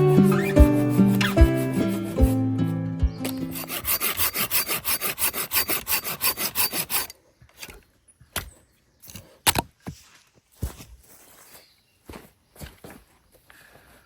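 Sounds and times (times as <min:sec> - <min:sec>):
hand saw cutting wood: 0:00.0 - 0:07.8
wood snapping: 0:09.1 - 0:09.7.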